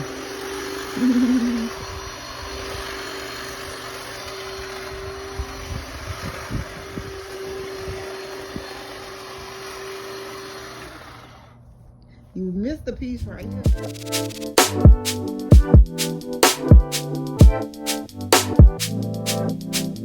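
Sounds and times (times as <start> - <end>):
string trimmer whining: 0.0 - 11.8.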